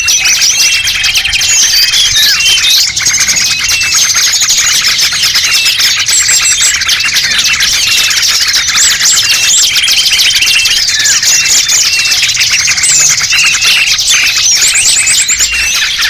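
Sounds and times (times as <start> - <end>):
songbirds chirping and trilling: 0.0 - 16.0.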